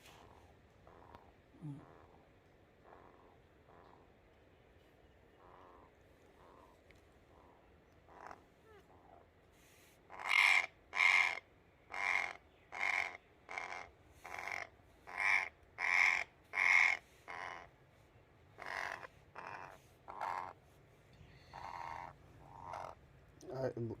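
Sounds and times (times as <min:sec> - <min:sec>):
parrot squawking harshly: 0:10.1 - 0:17.7, 0:18.6 - 0:20.6, 0:21.5 - 0:23.0.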